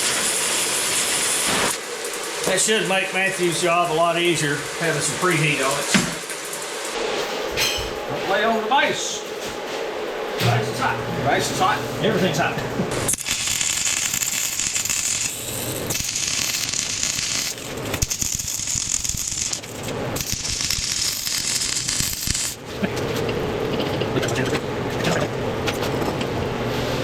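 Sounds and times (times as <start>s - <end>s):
welder arc crackling and hissing: 0.0s - 9.2s, 10.8s - 25.4s.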